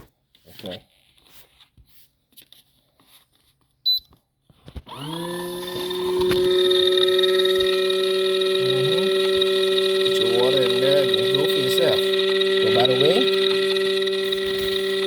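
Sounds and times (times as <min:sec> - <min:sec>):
washing machine motor humming: 0:04.9 - 0:15.0.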